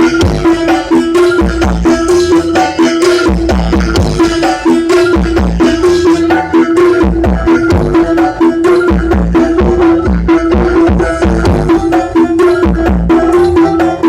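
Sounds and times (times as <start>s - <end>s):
deep bass thumps: 0.0s - 0.7s, 1.4s - 2.4s, 3.2s - 13.9s
hand-drum hits dropping in pitch: 0.0s - 14.0s
held tone: 0.0s - 14.0s
loud dance music: 0.0s - 14.0s.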